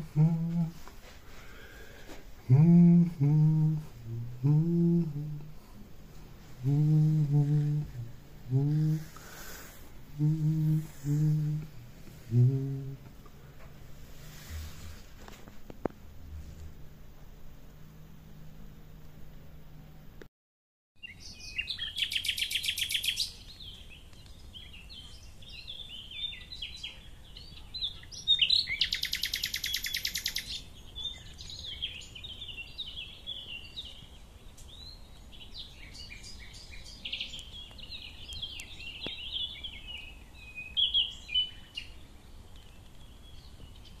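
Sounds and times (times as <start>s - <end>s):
birds singing: 21.0s - 44.0s.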